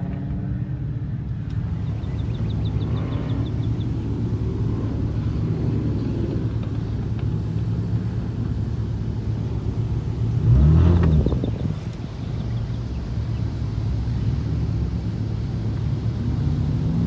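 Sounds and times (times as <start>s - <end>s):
car engine and road rumble: 0.0s - 17.0s
engine revving: 9.3s - 17.0s.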